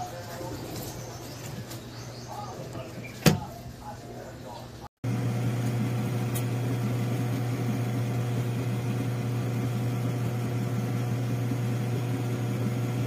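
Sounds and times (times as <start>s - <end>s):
washing machine motor humming: 5.0s - 13.0s.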